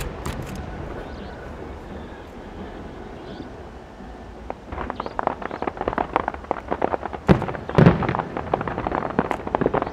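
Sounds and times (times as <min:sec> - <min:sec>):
fireworks crackling pops: 0:00.0 - 0:00.8, 0:04.4 - 0:09.9
fireworks low rumble: 0:00.0 - 0:09.9.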